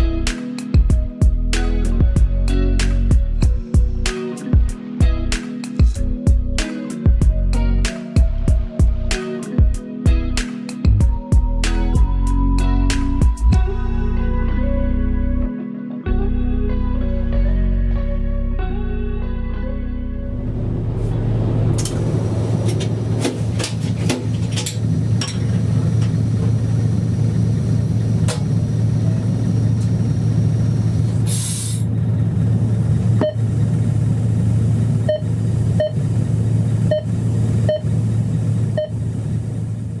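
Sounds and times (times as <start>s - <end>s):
locomotive cab rumble: 20.3s - 40.0s
short hiss: 31.2s - 31.9s.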